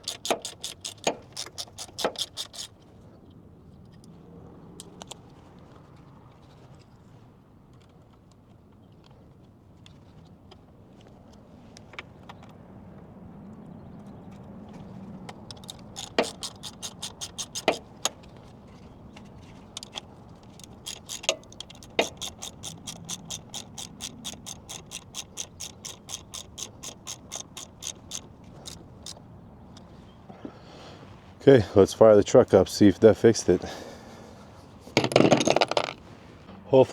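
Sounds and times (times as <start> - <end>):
ratchet pawl clicking: 0.0 - 2.7, 15.5 - 18.2, 19.8 - 29.2
metal tool clanks: 15.5 - 18.2, 19.8 - 29.2, 35.0 - 36.0.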